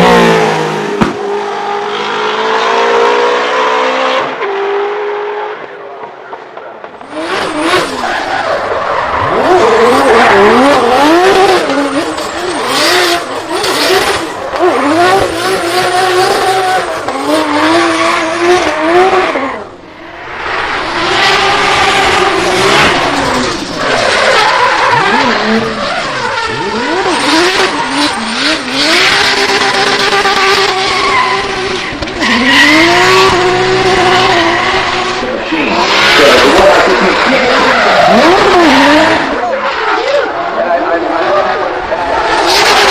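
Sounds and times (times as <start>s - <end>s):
car engine revving: 0.0s - 5.8s, 6.8s - 42.9s
tyres screeching: 20.4s - 40.5s.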